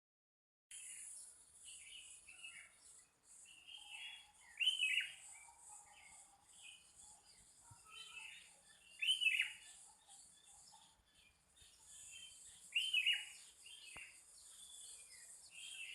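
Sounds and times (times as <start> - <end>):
birds chirping: 0.7 - 15.9
loud sweeping bird calls: 1.8 - 5.3, 11.6 - 15.9.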